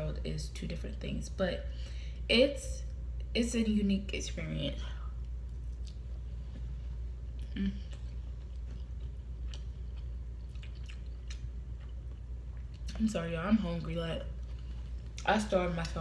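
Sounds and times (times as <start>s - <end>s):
low electrical hum: 0.0s - 16.0s
person chewing wetly: 5.2s - 13.0s
person humming: 7.5s - 8.0s.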